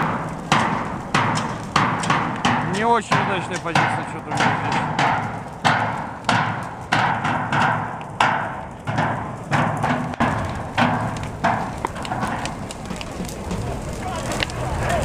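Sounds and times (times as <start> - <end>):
rhythmic banging on hard object: 0.0 - 13.9
crowd noise: 11.2 - 15.0.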